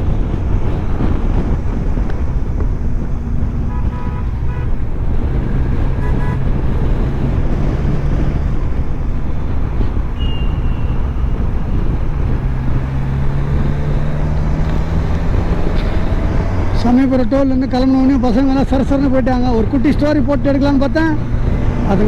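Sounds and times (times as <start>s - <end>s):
vehicle engine and road noise: 0.0s - 22.0s
car horn toots: 3.2s - 6.8s, 10.1s - 12.0s.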